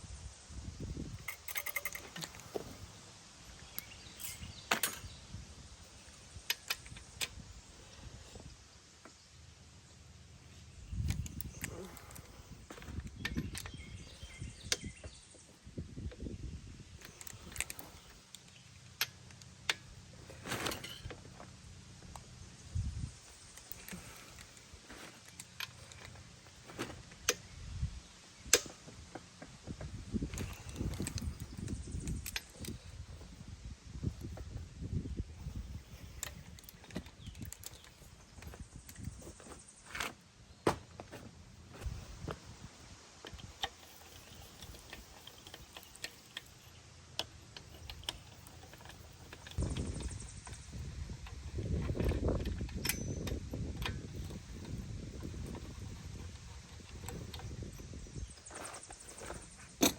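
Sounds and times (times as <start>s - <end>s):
metallic clinks of hand tools: 1.2s - 2.6s, 3.7s - 5.2s, 17.0s - 21.3s, 43.4s - 50.8s, 51.7s - 59.9s.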